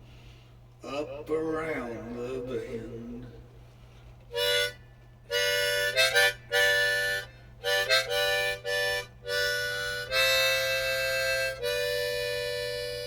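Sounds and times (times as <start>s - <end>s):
harmonica playing chords: 4.3s - 13.0s.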